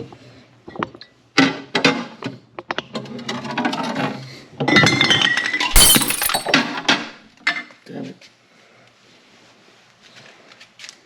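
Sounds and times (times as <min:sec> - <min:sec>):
hard objects clattering and clinking: 0:05.7 - 0:06.8.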